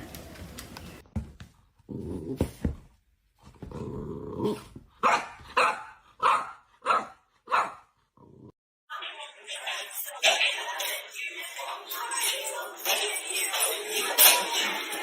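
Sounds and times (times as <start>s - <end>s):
dog growling: 3.6s - 4.7s
dog barking: 5.0s - 7.9s.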